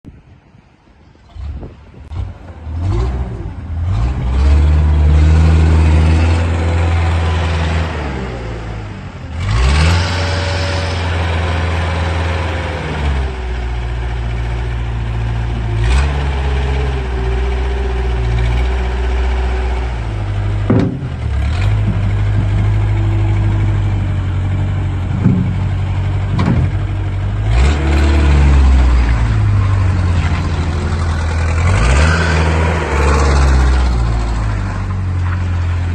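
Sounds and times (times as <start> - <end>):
engine revving: 1.3 - 35.9
sharp knocks: 20.6 - 23.0, 25.1 - 26.9.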